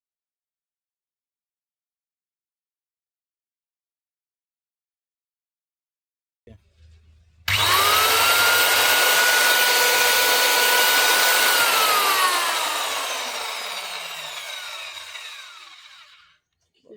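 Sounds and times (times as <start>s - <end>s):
tile cutter motor whining: 7.5s - 16.4s.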